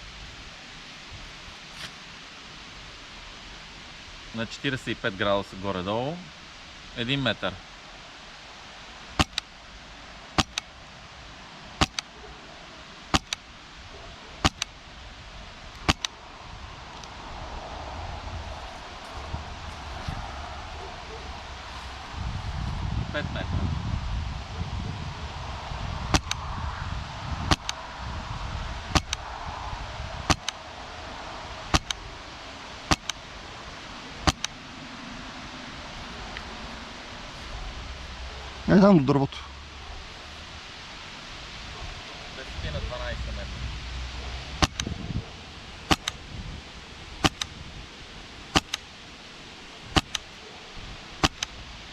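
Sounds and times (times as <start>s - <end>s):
quieter click after shot: 9.2s - 9.5s, 14.4s - 14.7s, 26.1s - 26.4s, 27.5s - 27.8s, 29.0s - 29.2s, 30.3s - 30.6s, 31.8s - 32.0s, 32.9s - 33.2s, 34.3s - 34.6s, 44.6s - 44.9s, 45.9s - 46.2s, 47.2s - 47.5s, 48.6s - 48.8s, 50.0s - 50.3s, 51.2s - 51.5s
suppressed airsoft rifle shots: 9.2s - 9.5s, 10.4s - 10.7s, 11.8s - 12.1s, 13.1s - 13.4s, 14.4s - 14.7s, 15.8s - 16.1s, 26.1s - 26.4s, 27.5s - 27.8s, 28.9s - 29.2s, 30.3s - 30.6s, 31.7s - 32.0s, 32.9s - 33.2s, 34.2s - 34.6s, 44.6s - 44.9s, 45.9s - 46.2s, 47.2s - 47.5s, 48.5s - 48.8s, 50.0s - 50.3s, 51.2s - 51.5s.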